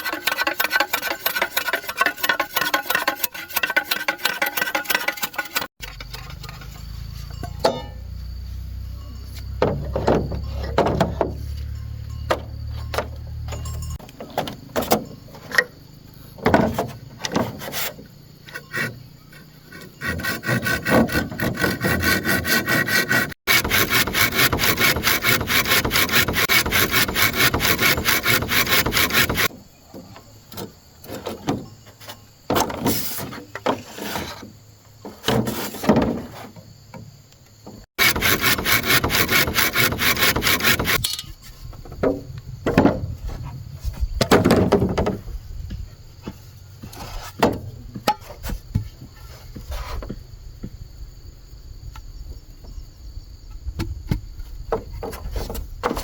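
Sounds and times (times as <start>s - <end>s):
hand saw cutting bamboo: 0.0s - 7.1s, 17.2s - 29.6s, 38.0s - 41.2s
knocks and scrapes: 0.0s - 51.0s, 53.4s - 56.0s.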